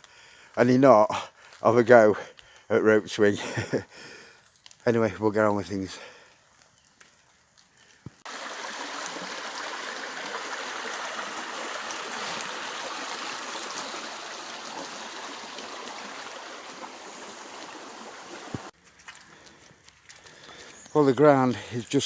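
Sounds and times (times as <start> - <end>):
running water rushing: 8.2 - 19.3.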